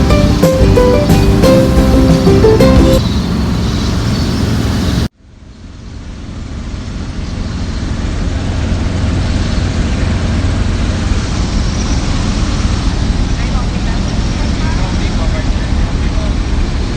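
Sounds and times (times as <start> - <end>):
steady noise: 0.0 - 4.7.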